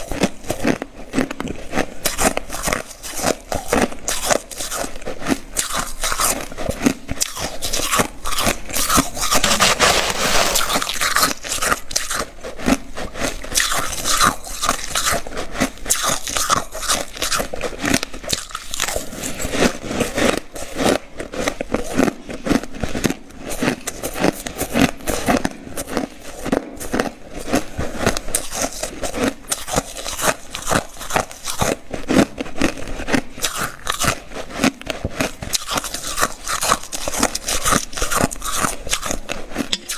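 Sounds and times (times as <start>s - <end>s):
person crunching ice: 0.0s - 39.9s.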